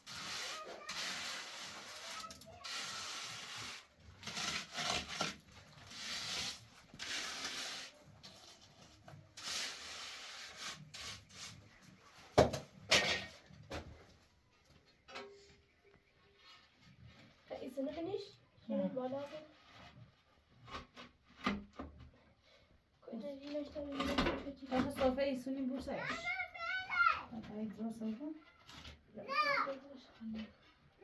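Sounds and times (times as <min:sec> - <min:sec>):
rough scraping strokes: 0:00.0 - 0:12.0.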